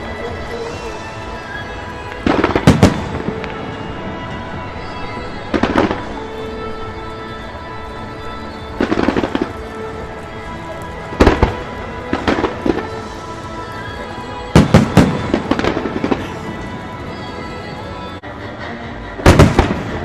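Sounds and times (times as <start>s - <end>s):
fireworks bangs: 0.0s - 18.2s, 19.2s - 20.0s
background music: 0.0s - 20.0s.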